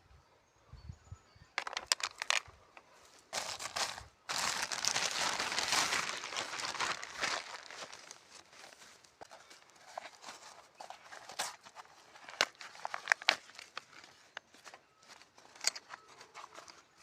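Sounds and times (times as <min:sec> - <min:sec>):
crackling crunching of dry brush: 0:01.6 - 0:17.0.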